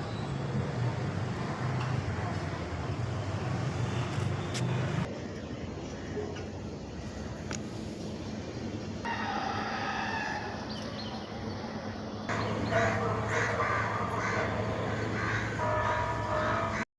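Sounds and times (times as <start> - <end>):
birds calling: 10.1 - 16.9.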